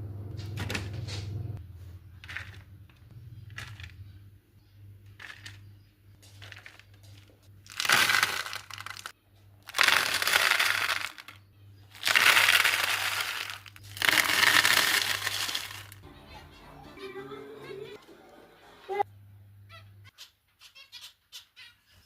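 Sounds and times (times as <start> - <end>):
egg food being crushed: 6.3 - 11.4, 12.0 - 16.0.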